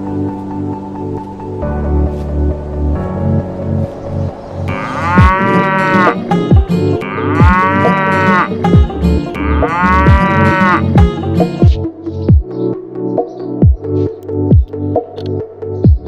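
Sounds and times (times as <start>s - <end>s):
cow mooing: 4.7s - 6.4s, 7.0s - 8.7s, 9.3s - 11.1s
music with kick-drum beat: 5.2s - 5.5s, 6.2s - 8.0s, 8.6s - 12.5s, 13.2s - 13.9s, 14.5s - 15.2s, 15.8s - 16.0s.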